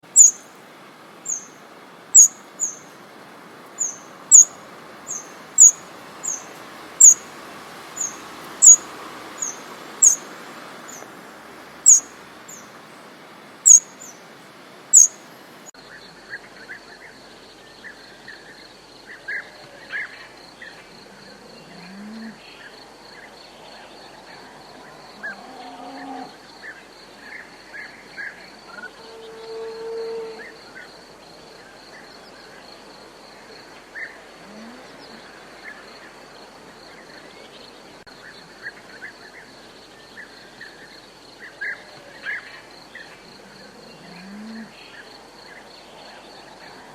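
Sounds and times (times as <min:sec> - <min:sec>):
soft chirping calls: 0:00.0 - 0:00.6, 0:01.2 - 0:03.0, 0:03.7 - 0:07.3, 0:08.0 - 0:11.1, 0:11.8 - 0:12.8, 0:13.6 - 0:14.3, 0:14.9 - 0:15.3
small bird high call: 0:00.1 - 0:00.5, 0:01.2 - 0:02.9, 0:03.8 - 0:07.3, 0:08.0 - 0:10.3, 0:11.8 - 0:12.6, 0:13.6 - 0:14.2, 0:14.9 - 0:15.2.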